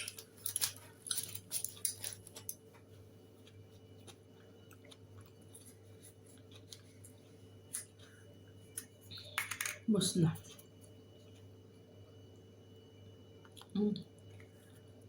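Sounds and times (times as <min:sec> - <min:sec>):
faint chewing: 0:00.0 - 0:09.2
steady low hum: 0:00.0 - 0:15.0.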